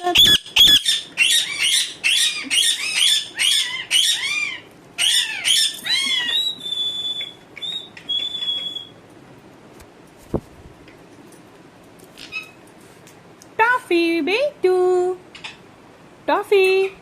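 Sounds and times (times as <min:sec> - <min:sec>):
parrot squawking: 0:00.0 - 0:09.0.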